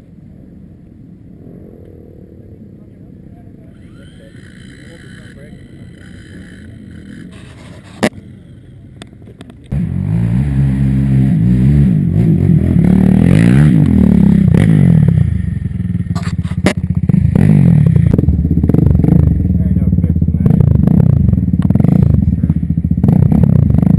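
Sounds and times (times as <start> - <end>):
small engine revving: 3.7 - 8.8, 9.7 - 15.4.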